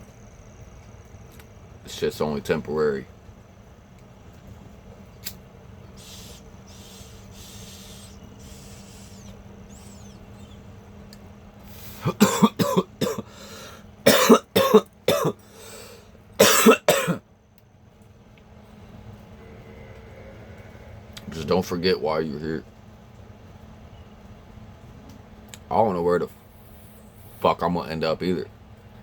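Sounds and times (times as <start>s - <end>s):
faint breathy hiss: 6.0s - 10.6s, 11.6s - 12.2s, 13.2s - 13.8s, 15.4s - 16.1s, 26.3s - 27.6s
man coughing: 12.0s - 13.3s, 14.0s - 15.4s, 16.4s - 17.2s.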